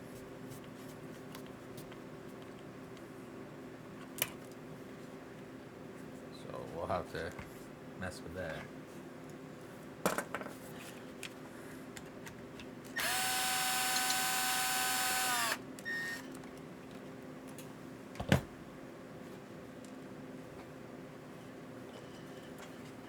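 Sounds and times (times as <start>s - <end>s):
power drill running: 13.0s - 16.2s.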